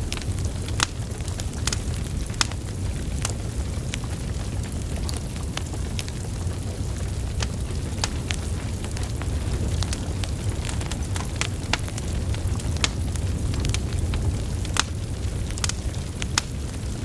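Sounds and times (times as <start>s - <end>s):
fire crackles and pops: 0.0s - 17.0s
fire flames rumbling: 0.0s - 17.0s.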